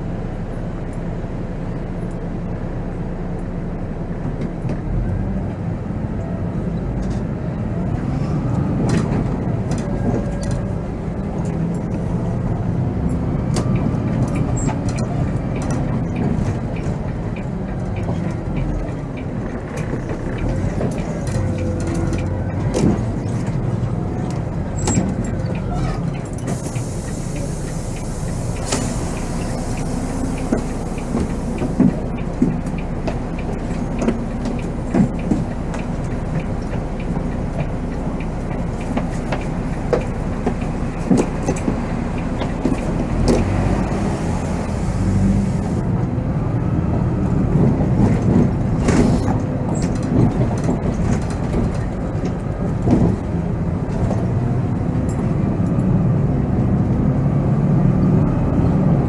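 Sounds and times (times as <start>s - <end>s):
coach diesel engine: 0.0s - 59.0s
road noise: 0.0s - 59.0s
bodywork knocks and rattles: 31.1s - 37.8s.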